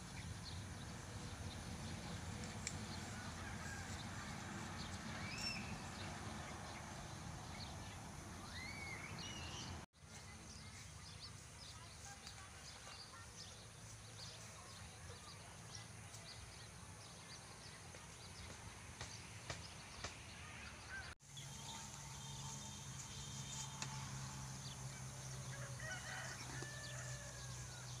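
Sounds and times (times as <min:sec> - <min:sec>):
outdoor background noise: 0:00.0 - 0:28.0.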